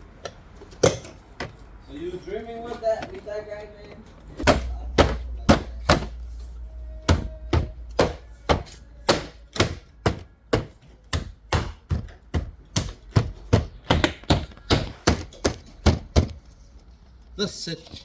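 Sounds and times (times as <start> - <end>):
repetitive beat with bass thumps: 4.3 - 16.5.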